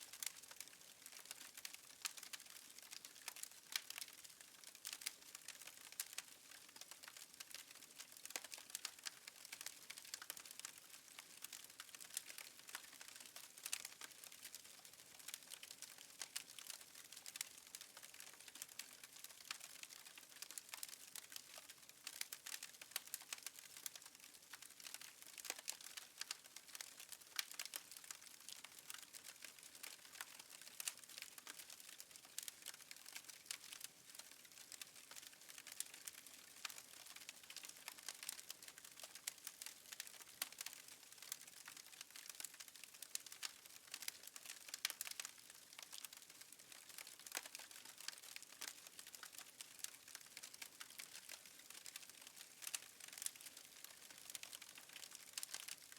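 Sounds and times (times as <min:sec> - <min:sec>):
fire crackling and popping: 0:00.1 - 0:55.9.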